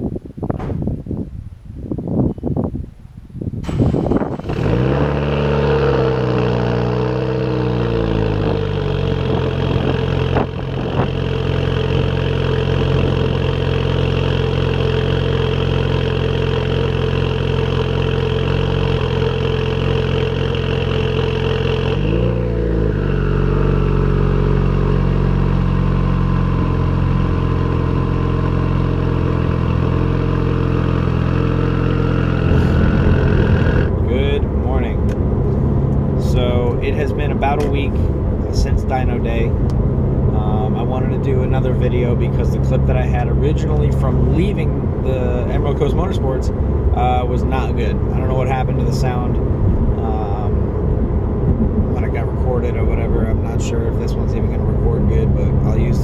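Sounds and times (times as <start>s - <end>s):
car engine running: 3.6s - 56.0s
faint whine: 27.2s - 56.0s.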